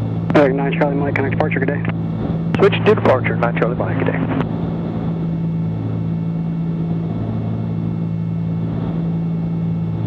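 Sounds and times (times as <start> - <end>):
aircraft cabin engine drone: 0.0 - 10.0.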